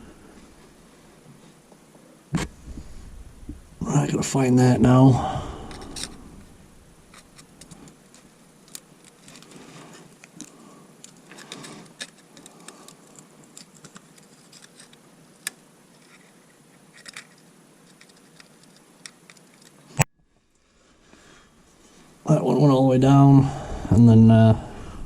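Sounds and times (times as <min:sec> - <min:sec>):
handling noise: 0:00.0 - 0:04.1, 0:04.8 - 0:20.0.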